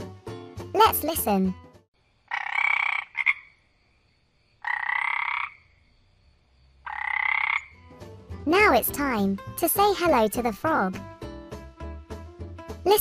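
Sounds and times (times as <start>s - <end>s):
frog croaking: 2.2s - 3.8s, 4.6s - 6.0s, 6.7s - 7.9s.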